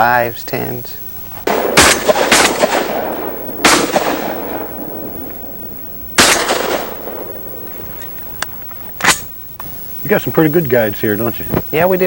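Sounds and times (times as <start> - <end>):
shotgun blasts: 1.4 - 9.2.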